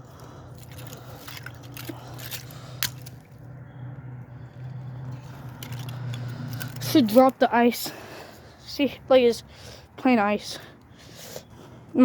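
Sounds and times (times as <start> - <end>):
ice crunching and clicking: 0.0 - 3.4, 5.1 - 7.5
steady low hum: 0.0 - 12.0
ice cracking: 0.6 - 3.3.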